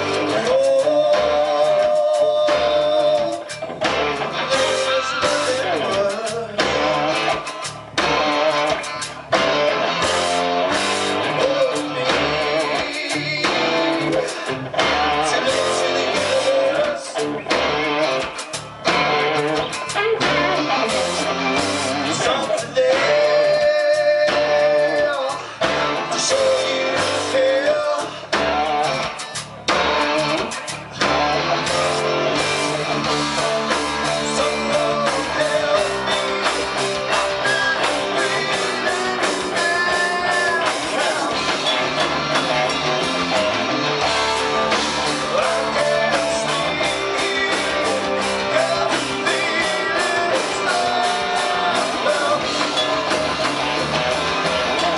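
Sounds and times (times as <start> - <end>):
guitar: 0.0 - 54.9
person singing: 0.0 - 54.9
rock band playing: 0.0 - 54.9.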